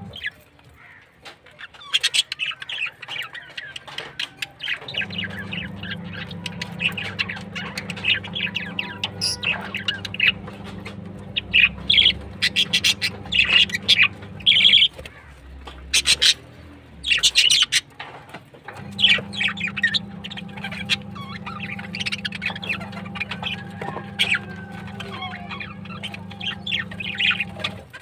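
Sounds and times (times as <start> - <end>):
steady low hum: 0.0 - 0.2, 4.8 - 15.0, 18.6 - 27.8
small birds chirping: 0.0 - 18.0, 18.7 - 28.0.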